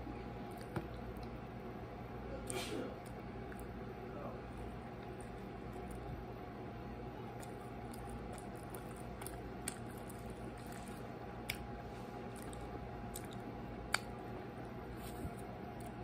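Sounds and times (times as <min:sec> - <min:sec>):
low room hum: 0:00.0 - 0:16.0
chewing pizza: 0:00.3 - 0:01.4, 0:02.3 - 0:06.3, 0:07.0 - 0:16.0
sharp mouth clicks: 0:12.3 - 0:14.2.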